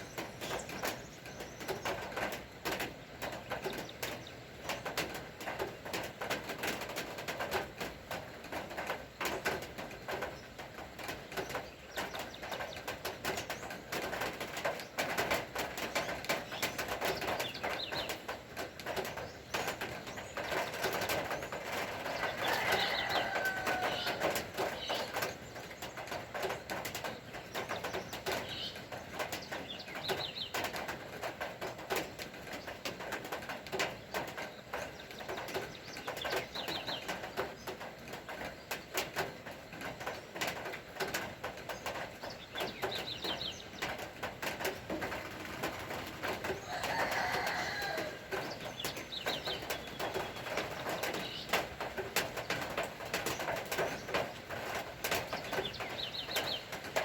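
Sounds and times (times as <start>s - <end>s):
birds chirping: 0.0s - 5.6s, 8.5s - 40.7s, 41.5s - 57.0s
low falling bird calls: 0.0s - 6.0s, 8.8s - 57.0s
rain patter: 0.0s - 57.0s.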